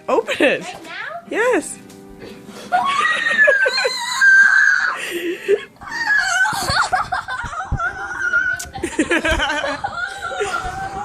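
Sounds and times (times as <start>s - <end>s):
excited voices: 2.7s - 5.1s, 5.8s - 11.0s
high-pitched screaming: 2.8s - 5.0s, 7.9s - 8.7s.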